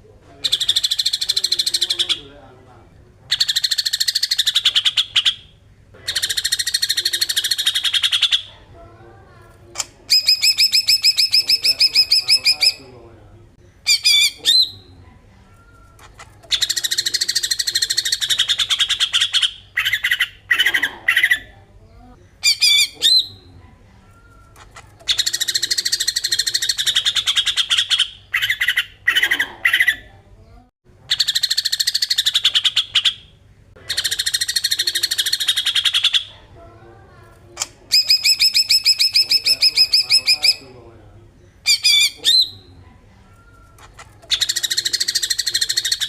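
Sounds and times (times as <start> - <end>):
bird rasping chatter: 0.4 - 2.4, 3.3 - 8.7, 9.8 - 13.0, 13.9 - 14.9, 15.8 - 21.5, 22.4 - 23.4, 24.3 - 30.1, 31.1 - 36.4, 37.6 - 40.8, 41.6 - 42.7, 43.4 - 46.0.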